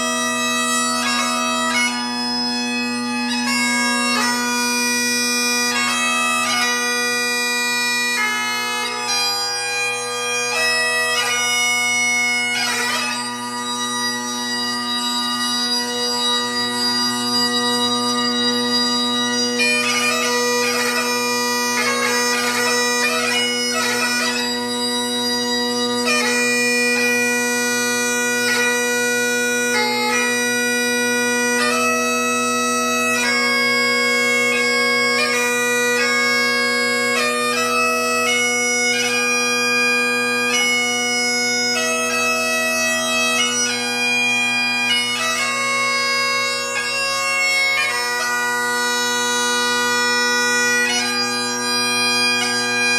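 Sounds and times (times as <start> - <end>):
bagpipe playing a tune: 0.0 - 52.9.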